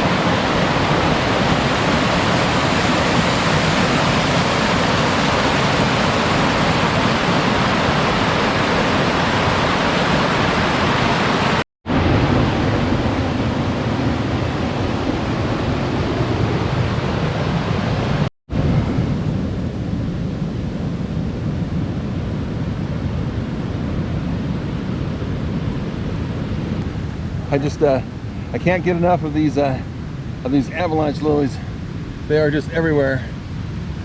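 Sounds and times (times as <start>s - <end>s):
waterfall rushing: 0.0s - 18.3s.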